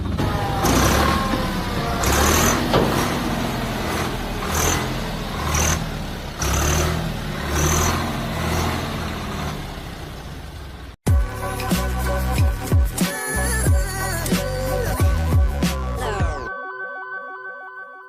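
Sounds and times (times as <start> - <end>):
tractor diesel engine surging: 0.0 - 12.4.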